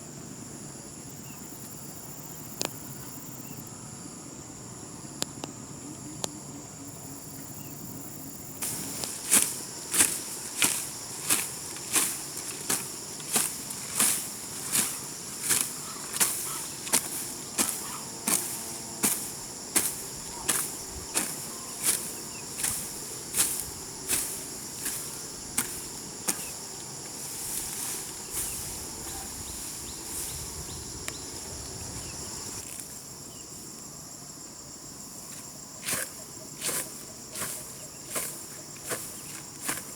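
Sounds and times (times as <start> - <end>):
crickets trilling: 0.0 - 39.9
hoe chopping into soil: 8.6 - 30.4, 35.8 - 39.9.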